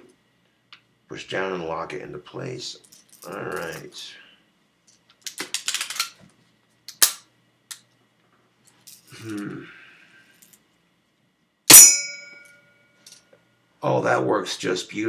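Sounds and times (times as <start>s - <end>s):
ringing after shot: 11.7s - 12.6s.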